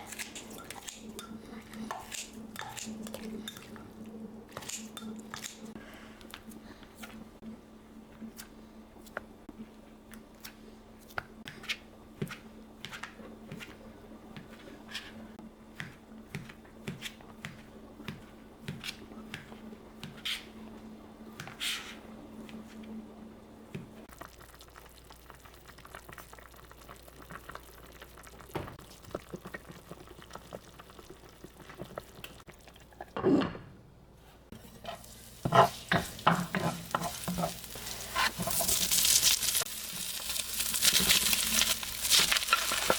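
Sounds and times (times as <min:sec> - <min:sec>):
low steady hum: 0:00.0 - 0:42.9
food sizzling in a pan: 0:34.6 - 0:42.9
utensil tapping and scraping pan: 0:34.8 - 0:37.6.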